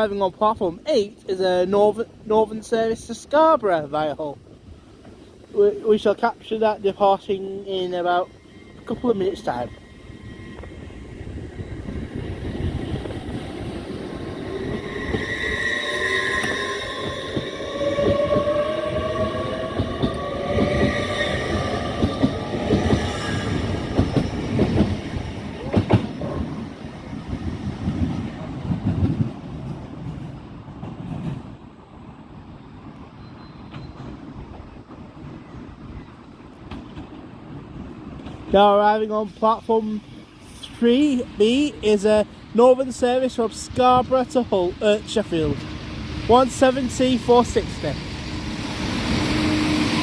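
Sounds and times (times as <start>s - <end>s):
passenger train rumble: 0.0s - 50.0s
high steady squeal: 7.7s - 25.0s, 45.5s - 50.0s.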